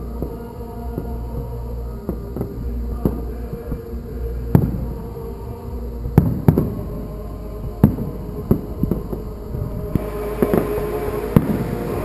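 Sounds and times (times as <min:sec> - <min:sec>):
small fireworks cracks: 0:06.1 - 0:07.0, 0:07.8 - 0:12.0
fireworks bangs: 0:06.2 - 0:06.9, 0:07.8 - 0:12.0.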